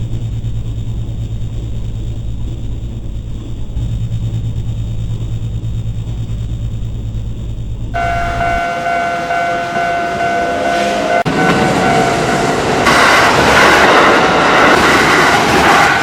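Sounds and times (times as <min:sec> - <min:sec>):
steady high tones: 0:00.0 - 0:13.6
train wheels clattering on rails: 0:08.0 - 0:16.0.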